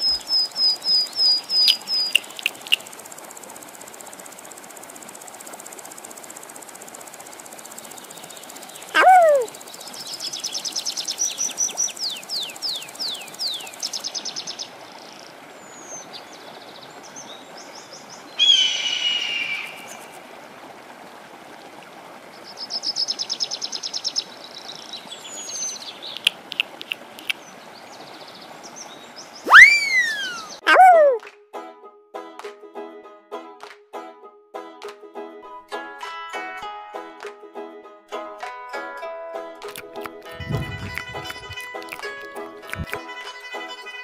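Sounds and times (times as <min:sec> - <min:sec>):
downward-sweeping bird whistles: 0:00.0 - 0:02.2, 0:18.4 - 0:19.8, 0:29.4 - 0:30.6
birds chirping trills: 0:00.0 - 0:03.0, 0:07.7 - 0:16.4, 0:22.8 - 0:31.2, 0:40.2 - 0:44.0
steady hiss: 0:00.0 - 0:14.5
harsh bird call: 0:08.9 - 0:09.5, 0:18.4 - 0:20.0, 0:29.4 - 0:31.2.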